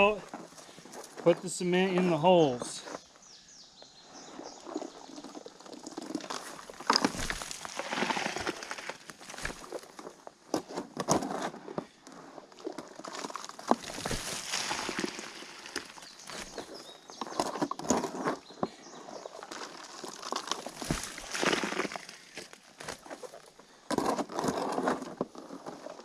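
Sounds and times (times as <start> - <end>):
concrete scraping and rustling: 4.2 - 26.0.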